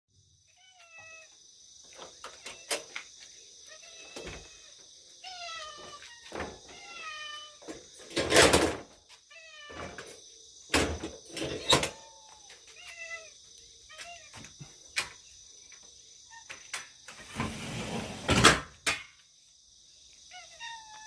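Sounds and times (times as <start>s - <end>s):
cats meowing: 0.5s - 1.4s, 2.2s - 3.0s, 3.6s - 7.9s, 9.2s - 10.2s, 11.3s - 14.8s, 20.3s - 21.0s.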